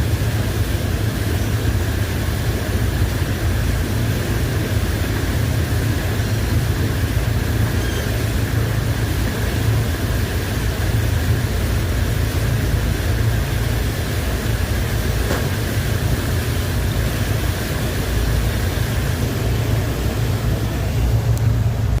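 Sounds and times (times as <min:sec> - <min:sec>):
boat engine droning: 0:00.0 - 0:22.0
water noise: 0:00.0 - 0:22.0
wind: 0:00.0 - 0:22.0.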